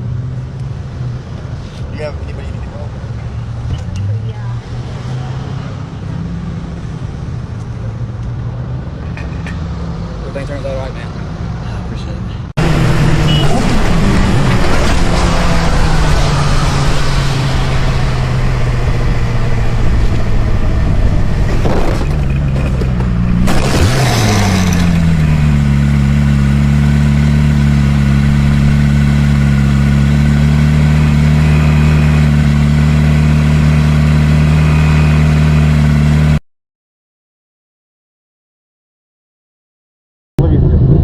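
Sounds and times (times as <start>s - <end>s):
vehicle engine running loudly: 12.6s - 36.4s.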